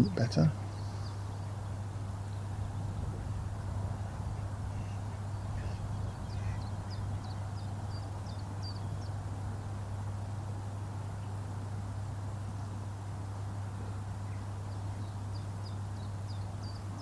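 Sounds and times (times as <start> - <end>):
outdoor background hiss: 0.0 - 17.0
steady low hum: 0.0 - 17.0
small bird chirping: 4.7 - 9.2.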